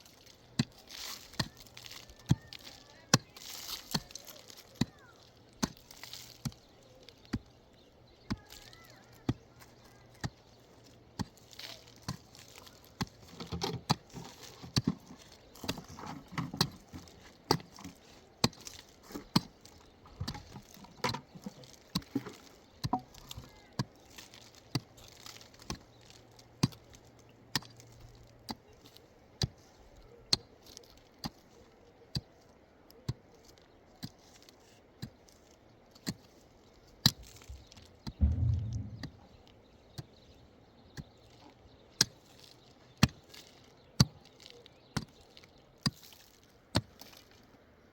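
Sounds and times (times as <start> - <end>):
sharp knocks: 38.2 - 39.3.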